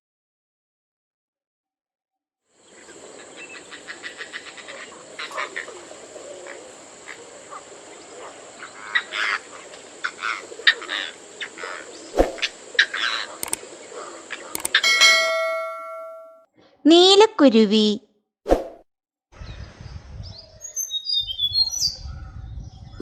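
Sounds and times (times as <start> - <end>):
bird clicking and croaking: 12.4 - 15.4.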